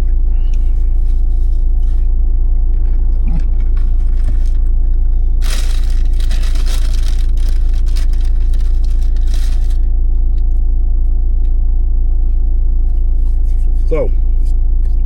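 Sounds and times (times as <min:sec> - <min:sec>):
vehicle engine idling: 0:00.0 - 0:15.0
packaging crinkling and rustling: 0:05.4 - 0:09.8.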